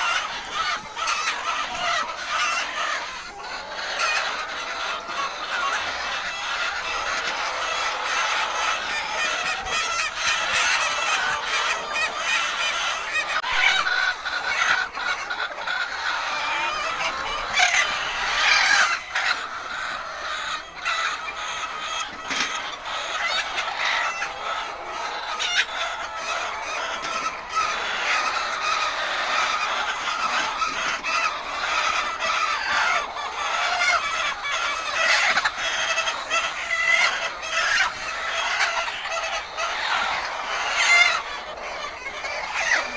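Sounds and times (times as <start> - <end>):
chickens clucking and squawking: 0.0 - 42.9.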